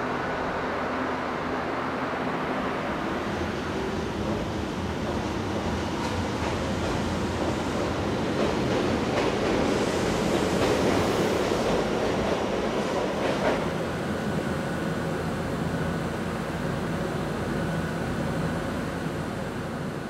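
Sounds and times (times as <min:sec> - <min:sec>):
electric train equipment hum: 0:00.0 - 0:20.0
train rolling past: 0:00.0 - 0:20.0
train wheel clack: 0:06.0 - 0:13.7.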